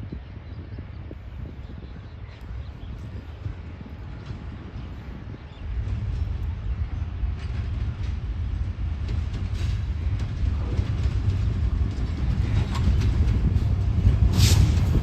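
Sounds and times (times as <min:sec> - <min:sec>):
passenger train rumbling on rails: 0:00.0 - 0:15.0.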